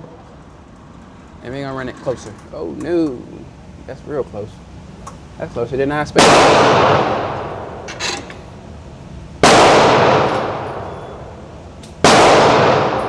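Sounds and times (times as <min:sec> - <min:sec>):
pistol shots echoing: 0:06.2 - 0:07.9, 0:09.4 - 0:13.0.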